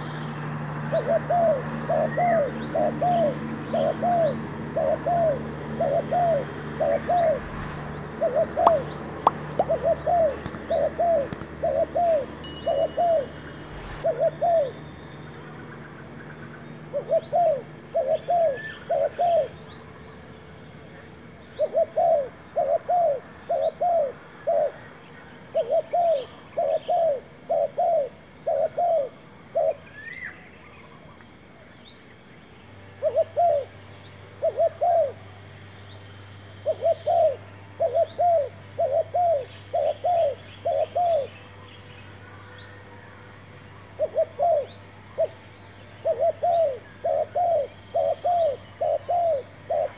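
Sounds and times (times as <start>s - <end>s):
dove cooing: 0.7s - 14.8s, 16.9s - 19.6s, 21.6s - 24.9s, 25.5s - 29.8s, 33.0s - 33.7s, 34.4s - 35.2s, 36.6s - 41.4s, 43.9s - 49.9s
faint small bird chirps: 8.2s - 15.3s, 29.6s - 32.1s, 43.8s - 49.9s.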